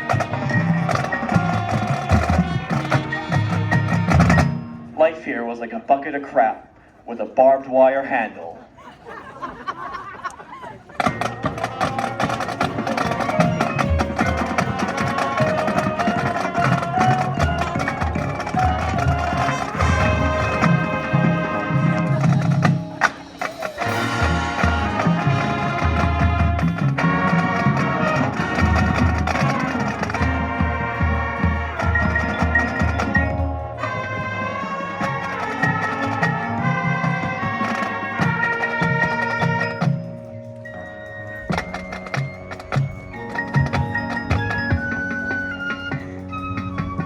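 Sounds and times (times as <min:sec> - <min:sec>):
brass and woodwind notes: 0:00.0 - 0:04.8, 0:11.0 - 0:47.0
mallet percussion: 0:00.0 - 0:05.0, 0:11.0 - 0:47.0
marching band music: 0:00.0 - 0:05.3, 0:09.1 - 0:47.0
percussion clicks: 0:39.6 - 0:47.0.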